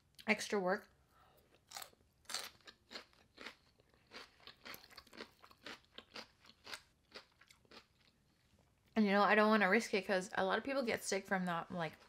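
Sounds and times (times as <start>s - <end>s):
crunchy chewing: 1.5s - 8.2s.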